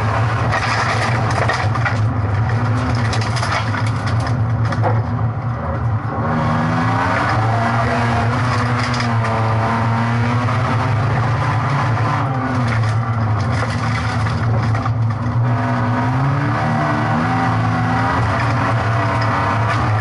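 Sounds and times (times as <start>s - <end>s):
tyre and gravel noise: 0.0s - 6.0s, 7.0s - 9.7s, 11.0s - 15.6s, 17.9s - 20.0s
car engine running hard: 0.0s - 20.0s.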